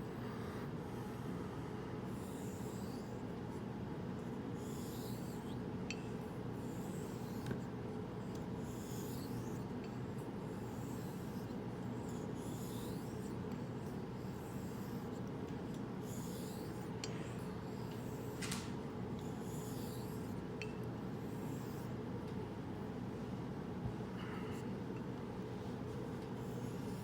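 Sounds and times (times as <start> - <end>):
steady low hum: 0.0 - 27.0
razor scraping on whetstone: 2.2 - 3.3, 4.6 - 7.7, 8.3 - 18.6, 19.2 - 20.7, 21.3 - 22.0, 26.4 - 27.0.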